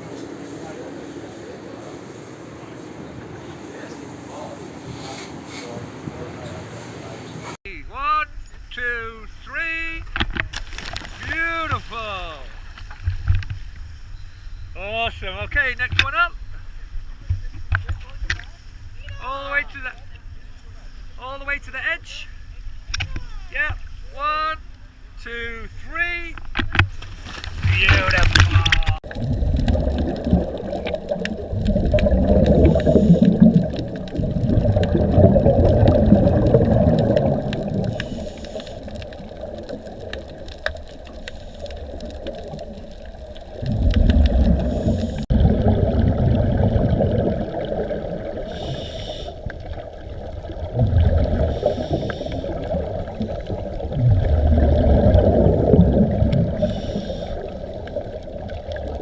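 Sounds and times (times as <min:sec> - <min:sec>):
underwater bubbles surging: 0:28.0 - 0:59.0
hissy regulator breaths: 0:32.3 - 0:33.8, 0:37.5 - 0:39.5, 0:41.0 - 0:42.6, 0:44.2 - 0:45.3, 0:48.4 - 0:49.6, 0:51.4 - 0:52.7, 0:56.5 - 0:57.9.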